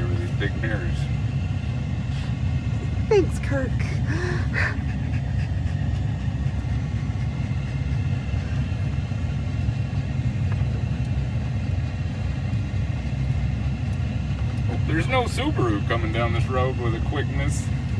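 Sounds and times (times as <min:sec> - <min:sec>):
truck engine rumbling: 0:00.0 - 0:17.9.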